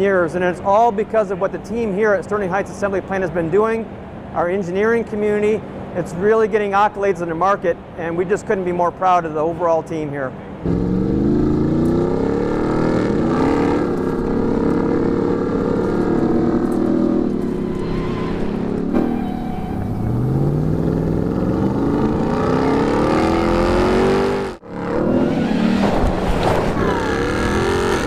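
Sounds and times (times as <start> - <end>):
truck engine revving: 10.6 - 28.0.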